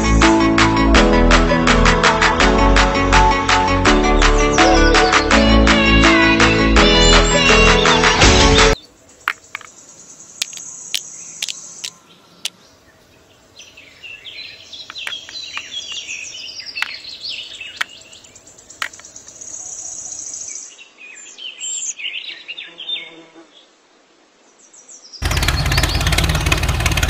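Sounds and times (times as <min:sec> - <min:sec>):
birds chirping: 0:06.9 - 0:23.7, 0:24.5 - 0:26.9
small hard objects set down: 0:09.2 - 0:09.8, 0:10.4 - 0:12.0, 0:14.9 - 0:16.0
high insect buzz: 0:22.5 - 0:23.8.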